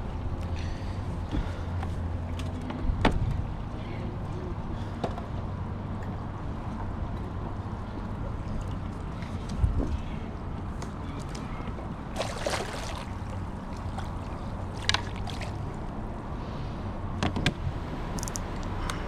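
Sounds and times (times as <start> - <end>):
wind: 0.0 - 19.0
water noise: 5.6 - 19.0.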